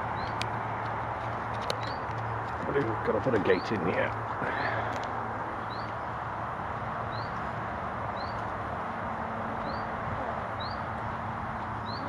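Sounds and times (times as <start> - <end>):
bird chirping: 0.0 - 0.4, 1.7 - 2.2, 5.6 - 6.1, 7.0 - 7.5, 8.1 - 8.5, 9.6 - 11.0, 11.6 - 12.0
rushing background noise: 0.0 - 12.0.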